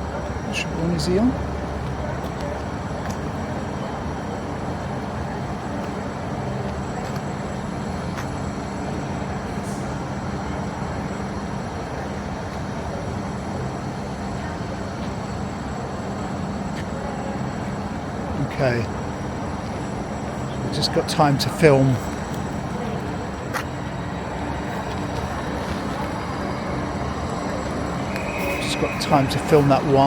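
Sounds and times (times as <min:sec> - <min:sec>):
train rumbling: 0:17.8 - 0:30.0.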